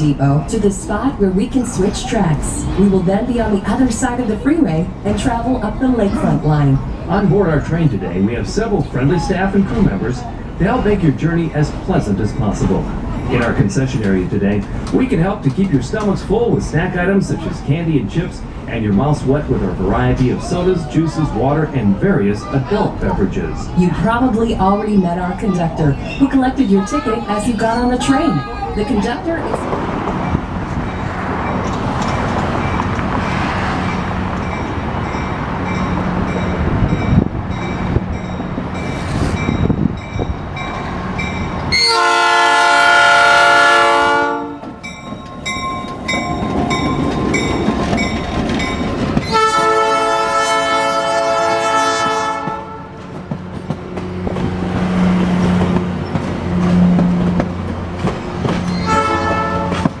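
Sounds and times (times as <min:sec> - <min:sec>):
train rumbling on track: 0:00.0 - 1:00.0
locomotive horn blasts: 0:41.7 - 0:44.8, 0:49.2 - 0:53.1, 0:58.8 - 0:59.9.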